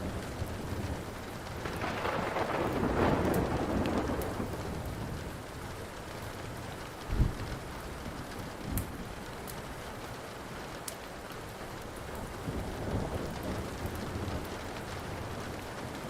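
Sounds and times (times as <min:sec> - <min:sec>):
thunder rolling: 0:00.0 - 0:05.5
steady rain: 0:00.0 - 0:16.0
wood fire crackling: 0:00.0 - 0:16.0.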